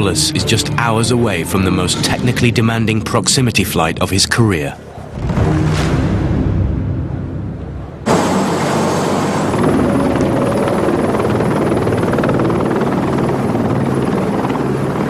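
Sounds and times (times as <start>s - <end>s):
helicopter rotor chopping: 8.0s - 15.0s.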